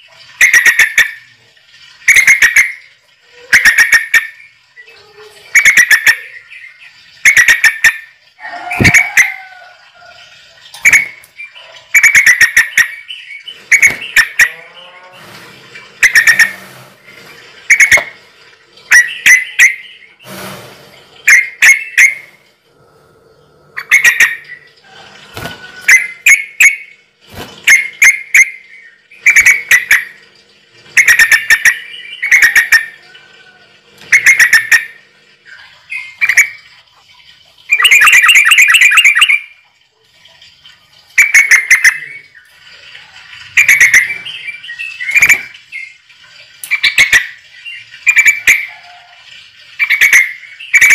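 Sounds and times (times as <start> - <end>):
bird squawking: 3.4 - 4.4, 5.0 - 9.7, 10.8 - 15.2, 16.0 - 16.8, 17.7 - 18.2, 18.9 - 20.3, 21.2 - 22.4, 23.8 - 25.0, 25.6 - 26.9, 27.6 - 30.1, 31.0 - 36.6, 37.7 - 39.5.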